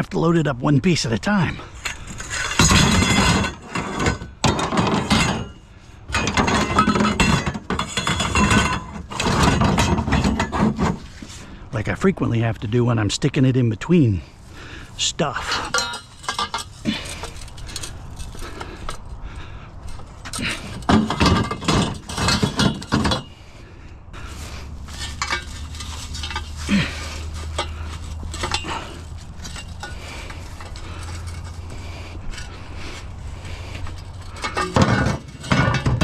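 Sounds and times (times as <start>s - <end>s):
scrap metal clattering: 1.4s - 11.6s, 14.2s - 23.6s, 24.2s - 36.0s.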